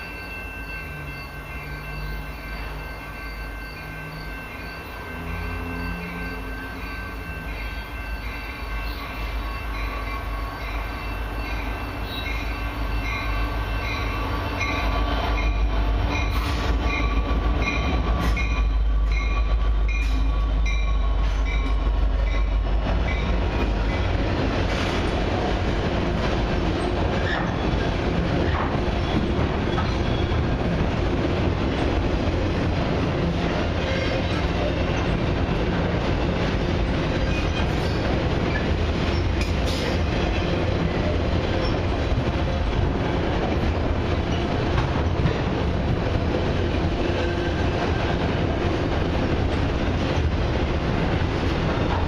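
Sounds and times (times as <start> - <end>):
bell-like tone ringing: 0.0 - 15.6
train cars rolling and clattering: 0.0 - 52.0.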